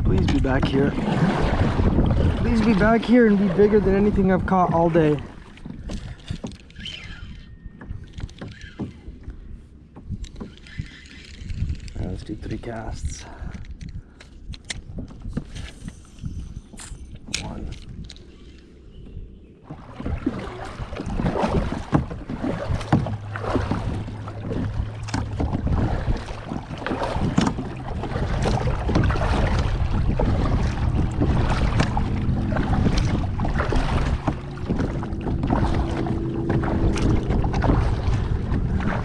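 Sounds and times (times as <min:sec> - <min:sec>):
low steady hum: 0:00.0 - 0:39.0
water slapping against hull: 0:00.0 - 0:39.0
wind buffeting microphone: 0:00.0 - 0:39.0.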